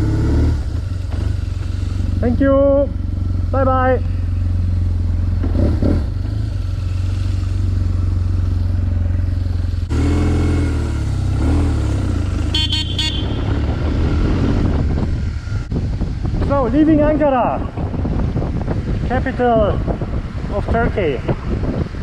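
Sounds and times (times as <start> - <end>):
motorcycle engine revving: 0.0 - 20.5
horn tooting: 12.4 - 13.7.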